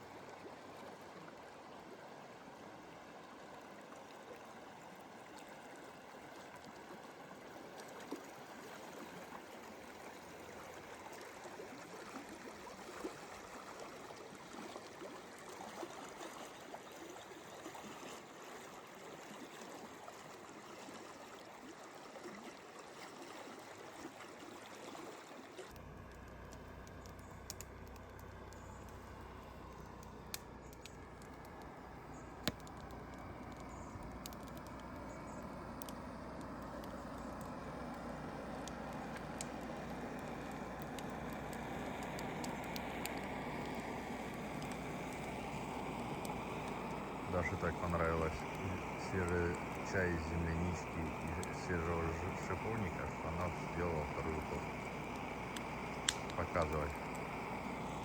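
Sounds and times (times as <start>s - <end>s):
stream water flowing: 0.0s - 58.0s
low hum: 25.8s - 58.0s
clicks: 46.2s - 57.3s.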